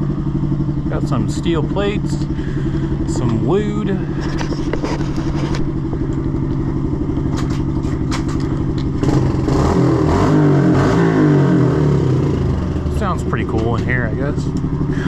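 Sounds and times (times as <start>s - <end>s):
motorbike engine revving: 0.0s - 15.0s.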